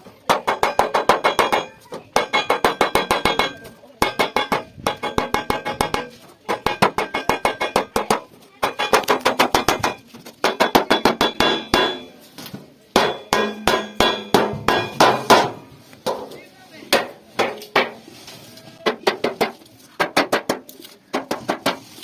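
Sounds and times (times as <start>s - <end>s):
hammer striking sheet metal: 0.3s - 12.2s, 13.0s - 16.3s, 16.9s - 18.0s.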